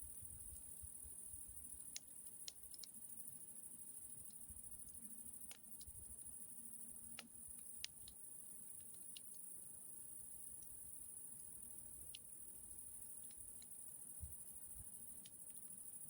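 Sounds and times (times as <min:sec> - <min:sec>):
campfire crackling: 0:00.9 - 0:16.0
fire pops and clicks: 0:01.6 - 0:03.1, 0:04.2 - 0:09.5, 0:11.6 - 0:16.0.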